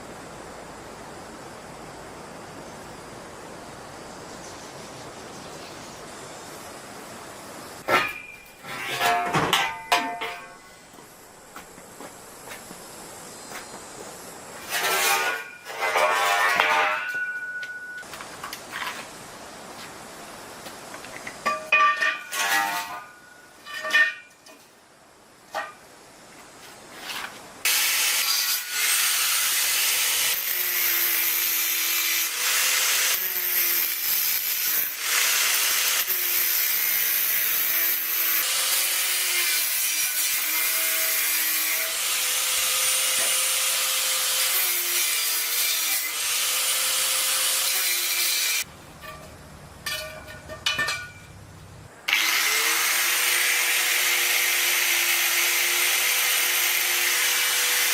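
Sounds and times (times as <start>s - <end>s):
power grinder grinding metal: 14.6s - 17.2s, 22.3s - 23.0s, 27.7s - 48.7s, 52.1s - 57.9s.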